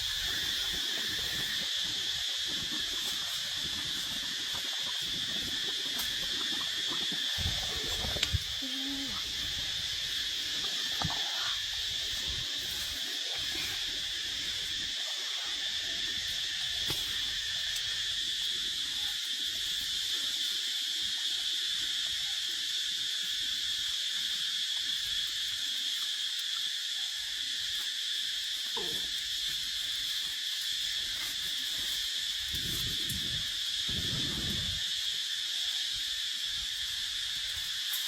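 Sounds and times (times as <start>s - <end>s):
insect chorus: 0.0s - 38.0s.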